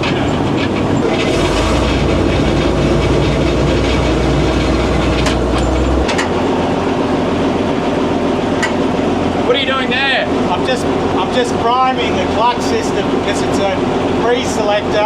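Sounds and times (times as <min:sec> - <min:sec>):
metallic rattles: 0:00.0 - 0:06.3
sharp clicks from controls: 0:00.0 - 0:06.4
tank engine running: 0:00.0 - 0:09.5.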